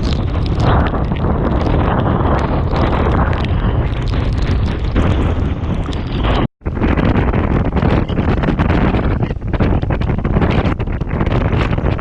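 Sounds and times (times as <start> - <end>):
lashing rain and spray: 0.0 - 12.0
wind buffeting microphone: 0.0 - 12.0.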